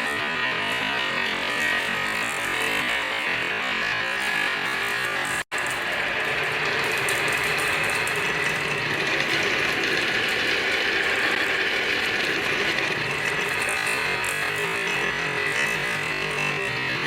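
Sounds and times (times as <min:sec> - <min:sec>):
marbles rattling along a track: 0:05.6 - 0:17.0.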